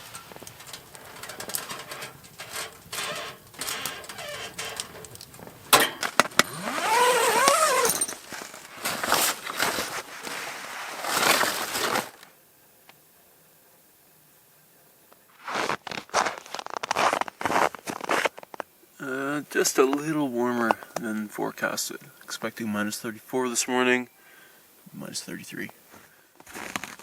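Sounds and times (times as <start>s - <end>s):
sleeping bags rustling: 0.0s - 12.3s, 15.3s - 18.6s, 25.8s - 27.0s.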